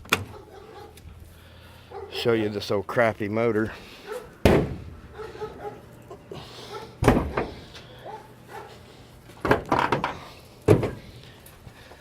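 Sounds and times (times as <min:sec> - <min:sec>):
loud thump: 0:04.4 - 0:04.9, 0:07.0 - 0:07.5.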